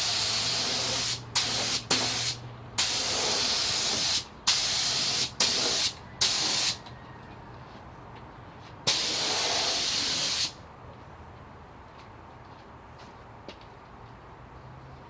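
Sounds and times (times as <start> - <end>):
spray gun hissing: 0.0 - 6.8, 8.9 - 10.6.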